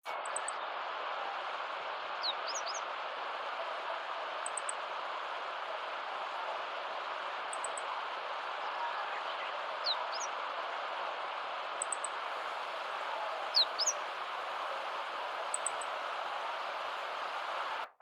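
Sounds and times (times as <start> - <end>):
steady rushing noise: 0.0 - 18.0
high downward-sweeping bird whistles: 13.5 - 14.0.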